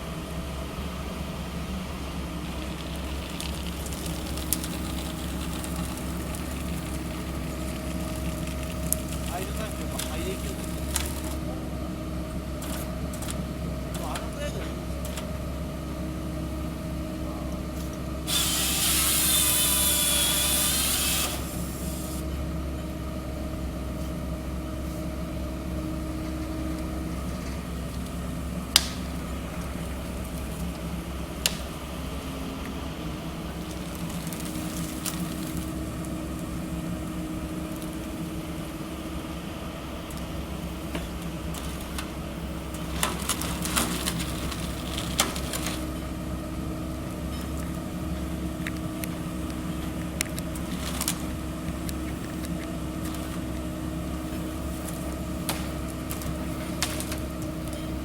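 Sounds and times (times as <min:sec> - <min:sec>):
excavator engine running: 0:00.0 - 0:58.0
loud hydraulic hiss: 0:17.8 - 0:22.3.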